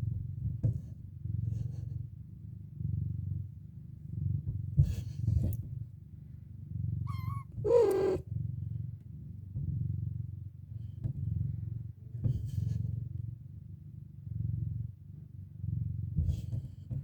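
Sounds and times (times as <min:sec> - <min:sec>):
cat purring: 0:00.0 - 0:17.0
low falling meow: 0:07.1 - 0:08.2.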